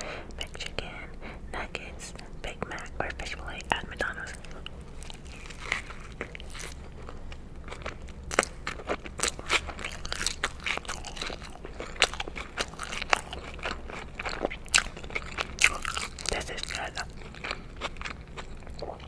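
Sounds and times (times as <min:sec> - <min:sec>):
chewing burger with wet crunches: 0:04.3 - 0:19.0.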